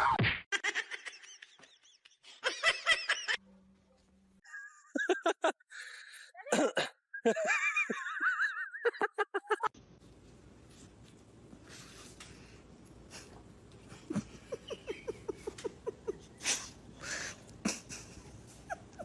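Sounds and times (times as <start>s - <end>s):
people laughing: 0.6s - 3.4s, 4.5s - 5.7s, 7.2s - 9.7s, 14.0s - 19.0s.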